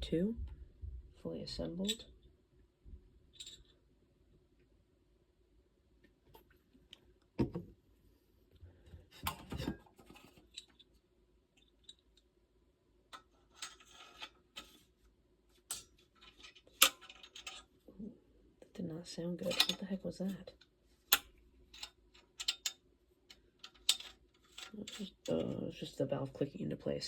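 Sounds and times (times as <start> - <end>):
metal valve parts clicking: 3.3 - 3.7, 13.1 - 14.8, 15.7 - 17.7, 19.4 - 19.9, 21.1 - 25.6.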